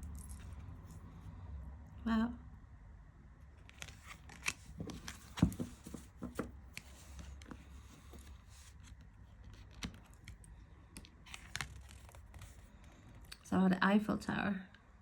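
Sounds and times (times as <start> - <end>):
cards tapping and sliding: 3.6 - 12.6.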